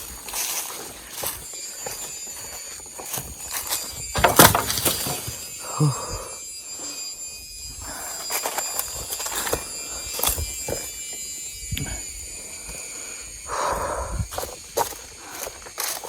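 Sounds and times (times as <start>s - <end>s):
insects shrilling: 0.0s - 16.0s
thuds and rustles in undergrowth: 3.0s - 5.6s.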